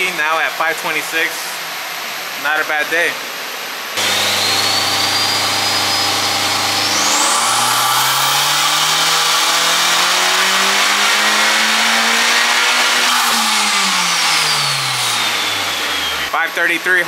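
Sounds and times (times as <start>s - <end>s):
car engine revving at full throttle: 4.0s - 16.3s.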